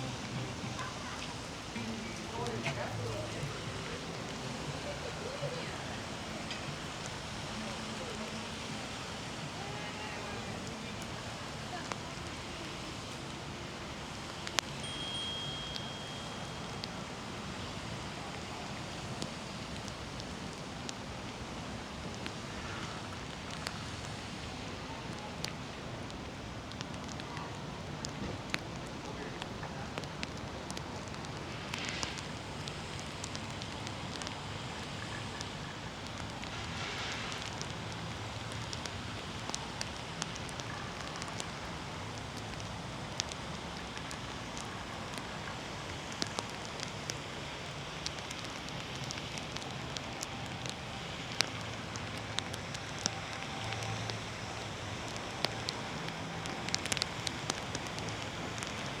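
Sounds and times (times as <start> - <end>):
raindrops ticking on surfaces: 0.0 - 59.0
steady rain falling: 0.0 - 59.0
high steady tone: 14.8 - 16.8.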